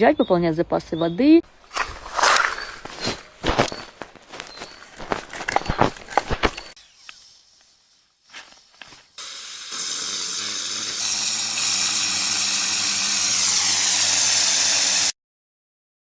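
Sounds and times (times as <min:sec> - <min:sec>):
loud steady hissing: 0:07.0 - 0:15.1.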